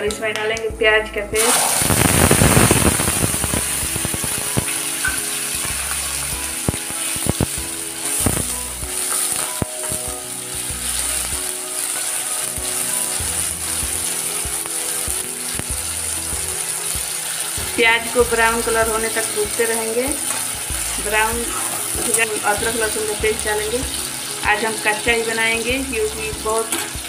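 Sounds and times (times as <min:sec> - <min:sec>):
onion paste sizzling in oil: 0:01.4 - 0:27.0
metal spatula scraping pan: 0:20.1 - 0:22.5.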